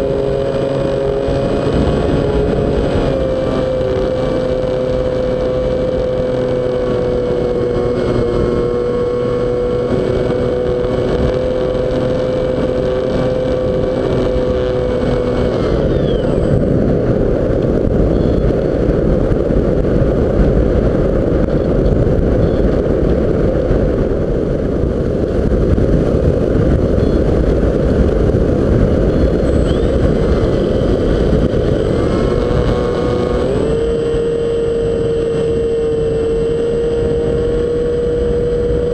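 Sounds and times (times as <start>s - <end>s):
wind rush on microphone: 0.0s - 38.9s
model plane motor whining: 11.2s - 16.7s.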